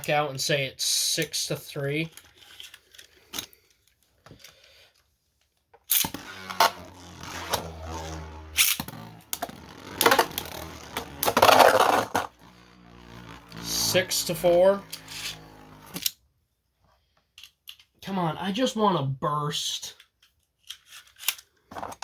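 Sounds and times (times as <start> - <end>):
spinning tops whirring: 5.9 - 16.2.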